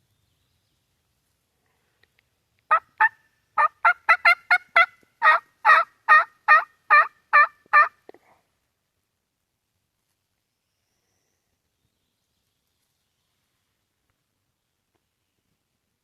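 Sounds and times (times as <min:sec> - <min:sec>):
turkey call yelps: 0:02.7 - 0:08.0.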